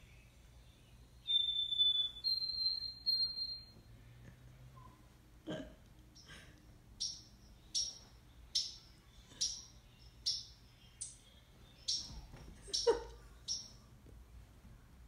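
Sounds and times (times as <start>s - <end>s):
bird chirps sweeping downward: 0.1s - 3.8s, 7.0s - 13.8s.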